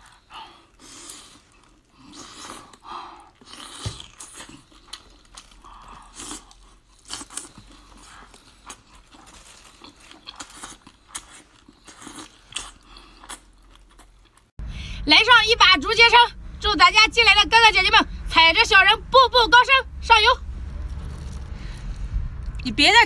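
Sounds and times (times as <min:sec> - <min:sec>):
person chewing with wet smacks: 0:00.0 - 0:14.5.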